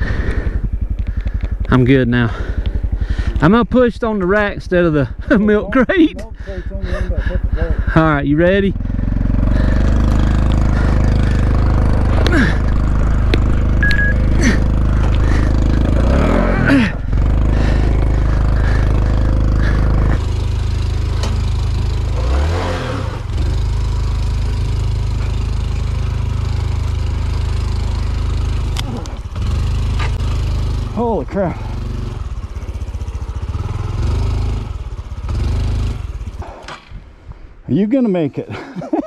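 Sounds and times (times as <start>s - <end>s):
motorcycle engine climbing: 0.0s - 39.0s.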